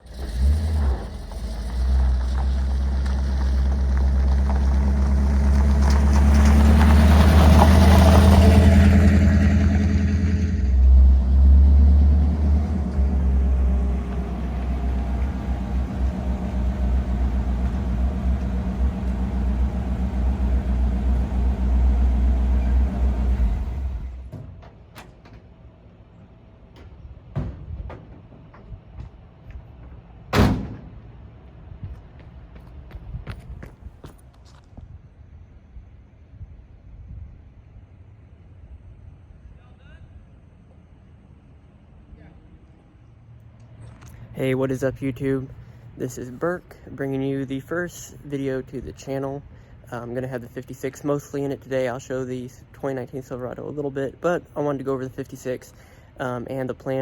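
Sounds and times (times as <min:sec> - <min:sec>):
pickup engine rumbling: 0:00.0 - 0:24.3, 0:43.2 - 0:57.0.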